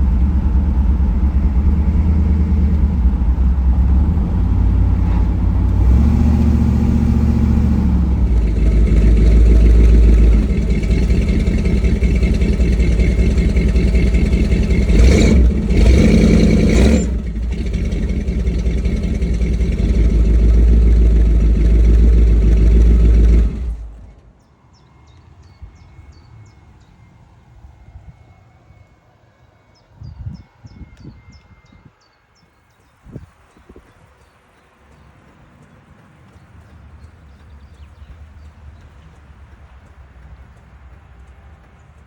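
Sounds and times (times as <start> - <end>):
engine idling and revving: 0.0 - 24.3
faint birdsong: 17.2 - 42.0.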